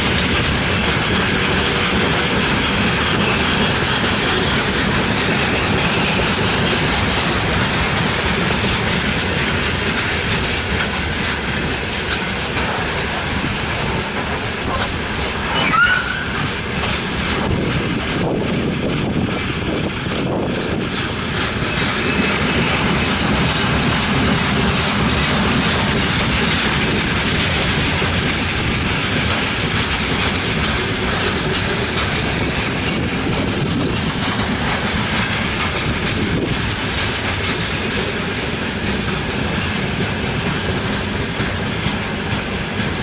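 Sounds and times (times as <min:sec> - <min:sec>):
clatter over rail joints: 0:00.0 - 0:43.0
train wheels rumbling on rails: 0:00.0 - 0:43.0
wheel squeal: 0:14.8 - 0:17.0.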